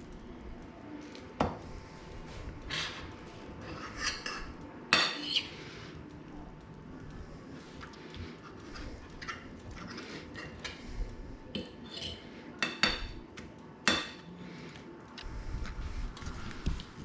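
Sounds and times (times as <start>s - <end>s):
cutlery scraping dishes: 2.7s - 5.5s, 9.1s - 10.8s, 11.6s - 13.2s.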